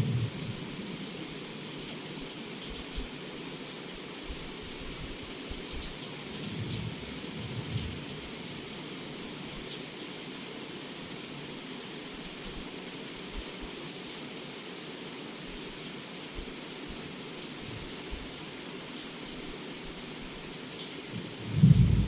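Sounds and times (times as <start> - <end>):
heavy rain against a window: 0.0 - 22.0.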